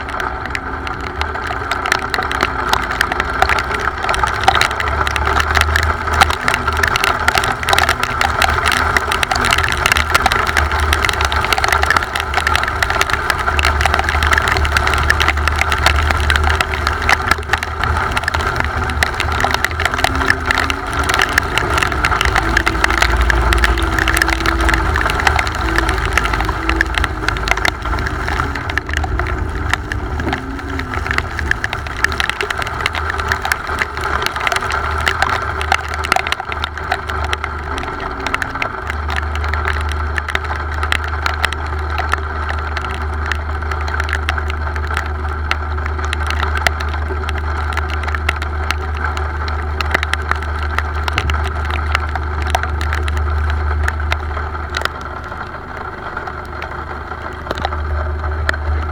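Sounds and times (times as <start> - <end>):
low rumble: 0.0 - 58.9
rain ticking: 0.0 - 58.9.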